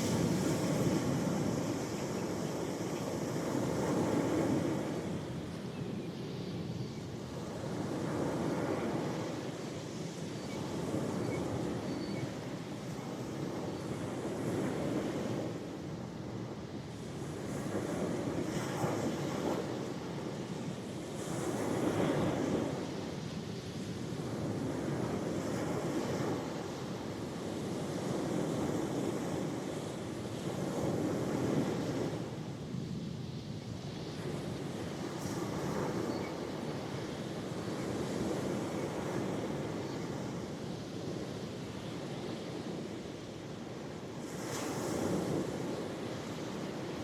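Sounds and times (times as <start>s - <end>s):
ocean waves breaking on shore: 0.0s - 47.0s
wind on microphone: 0.0s - 47.0s.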